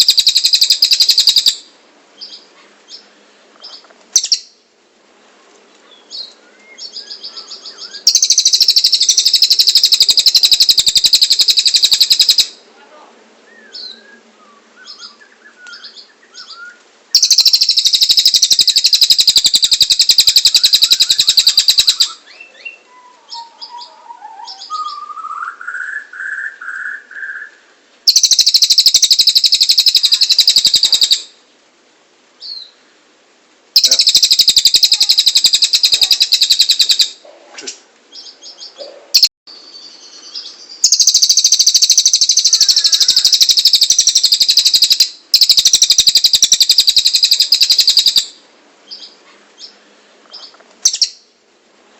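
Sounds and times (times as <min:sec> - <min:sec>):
bird rapid high-pitched trilling: 0:00.0 - 0:02.4, 0:04.2 - 0:04.6, 0:06.1 - 0:12.6, 0:14.8 - 0:27.5, 0:28.1 - 0:31.3, 0:33.8 - 0:37.2, 0:38.2 - 0:39.3, 0:40.1 - 0:49.8, 0:50.4 - 0:51.3
bird chirps: 0:00.0 - 0:04.6, 0:05.8 - 0:12.6, 0:13.5 - 0:31.4, 0:33.8 - 0:51.3
bird low warbling phrase: 0:22.9 - 0:25.3, 0:33.8 - 0:36.4.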